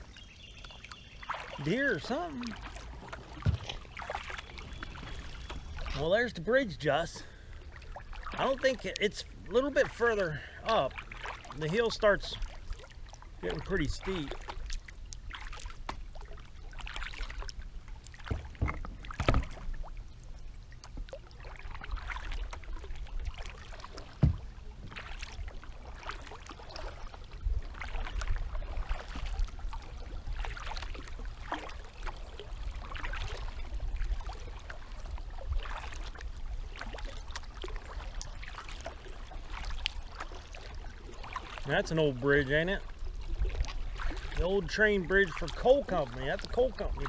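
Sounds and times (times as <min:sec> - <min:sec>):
paddle splashing in water: 0:00.0 - 0:47.0
sharp knocks: 0:24.2 - 0:24.4.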